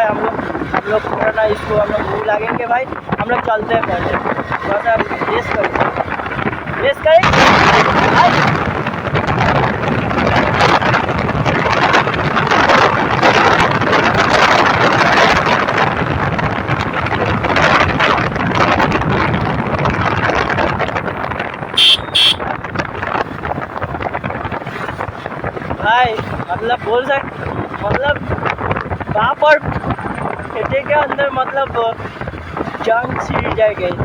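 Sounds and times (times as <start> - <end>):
wind noise on microphone: 0.0 - 34.0
motorcycle engine at speed: 3.8 - 26.5
horn beeps: 21.8 - 22.4.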